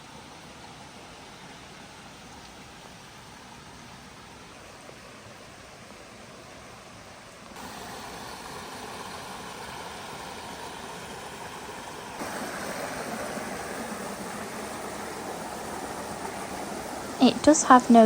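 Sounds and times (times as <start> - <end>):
water rushing over rocks: 7.6 - 18.0.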